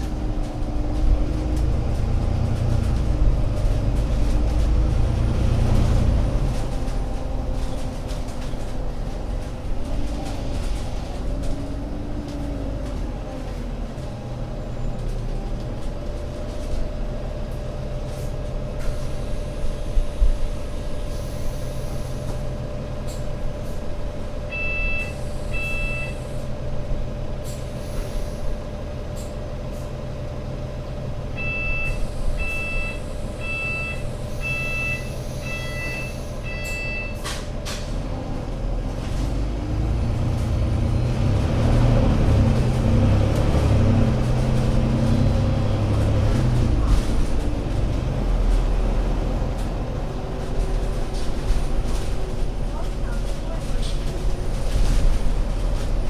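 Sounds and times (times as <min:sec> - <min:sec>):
bus diesel engine idling: 0:00.0 - 0:56.0.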